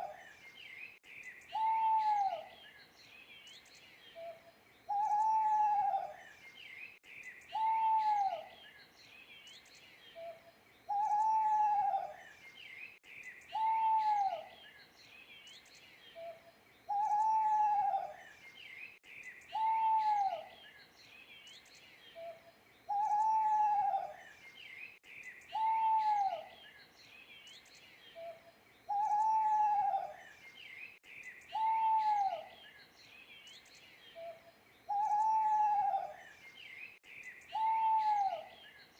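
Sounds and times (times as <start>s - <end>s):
small birds chirping: 0.0s - 38.9s
owl hooting: 1.5s - 2.5s, 4.2s - 6.2s, 7.5s - 8.5s, 10.2s - 12.2s, 13.5s - 14.5s, 16.2s - 18.2s, 19.5s - 20.5s, 22.2s - 24.2s, 25.5s - 26.5s, 28.2s - 30.2s, 31.5s - 32.6s, 34.2s - 36.2s, 37.5s - 38.6s.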